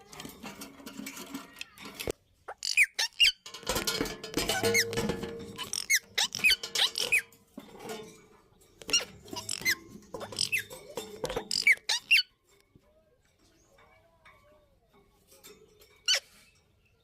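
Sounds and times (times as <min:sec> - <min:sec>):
parakeets squeaky calls: 0:02.4 - 0:03.4, 0:05.6 - 0:07.2, 0:08.8 - 0:12.4, 0:16.0 - 0:16.4.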